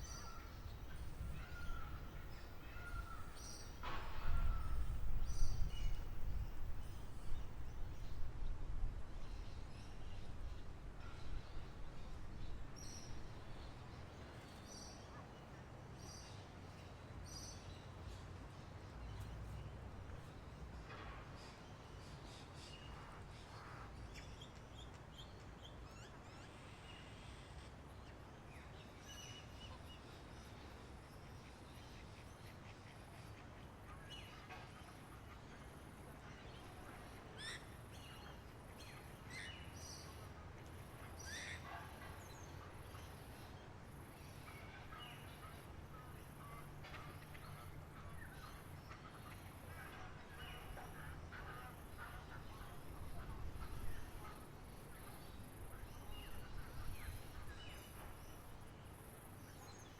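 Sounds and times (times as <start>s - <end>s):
birds chirping: 0.0s - 8.3s
faint birdsong: 0.0s - 59.9s
low rumbling background noise: 0.0s - 59.9s.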